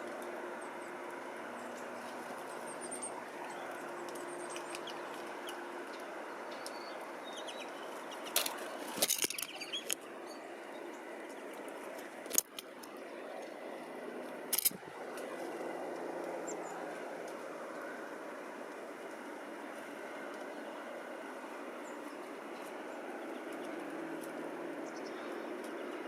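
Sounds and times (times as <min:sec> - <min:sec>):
birds fluttering and clattering: 0:00.0 - 0:26.0
steady background hum: 0:00.0 - 0:26.0
faint high bird chirps: 0:09.3 - 0:11.0.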